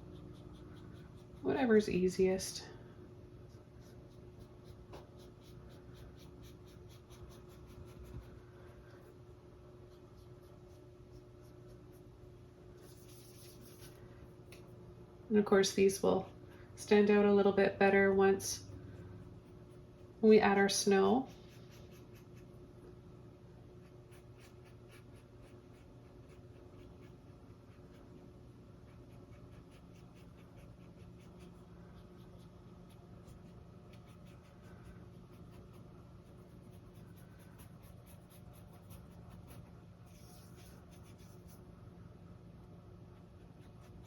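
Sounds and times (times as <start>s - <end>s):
low steady hum: 0.0s - 44.0s
paintbrush scratching on canvas: 3.4s - 8.4s, 12.8s - 14.0s, 28.8s - 41.6s.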